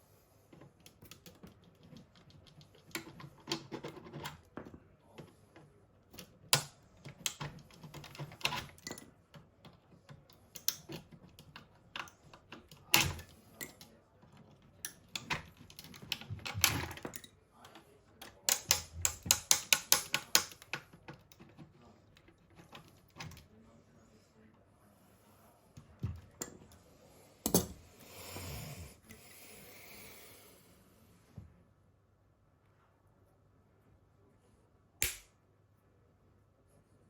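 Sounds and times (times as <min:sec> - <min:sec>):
small hard parts clicking: 0:06.1 - 0:23.4.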